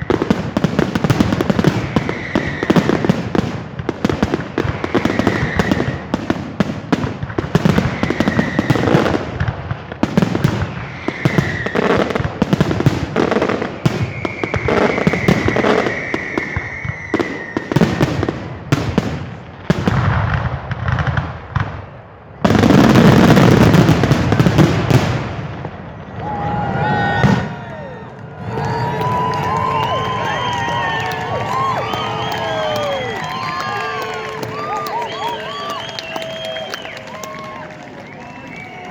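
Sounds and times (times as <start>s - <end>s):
fireworks banging and crackling: 0.0s - 38.9s
firework whistles: 1.1s - 3.3s, 4.6s - 6.2s, 7.6s - 9.2s, 10.5s - 12.3s, 13.5s - 18.1s, 28.6s - 38.9s.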